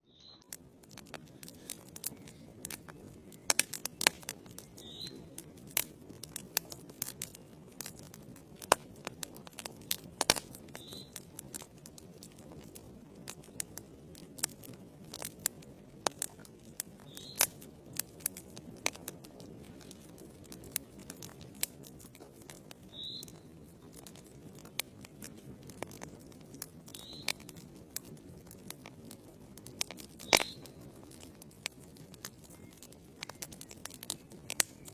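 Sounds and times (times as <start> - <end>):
logs crackling and popping: 0.0 - 34.9
low rumble of flames: 0.2 - 34.9.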